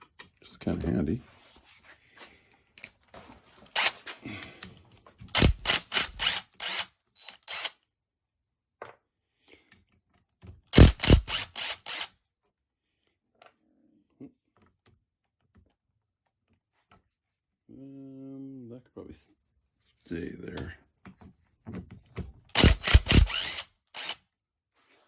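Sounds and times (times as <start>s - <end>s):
socket ratchet clicking: 5.3s - 7.7s, 10.8s - 12.1s, 22.6s - 24.2s.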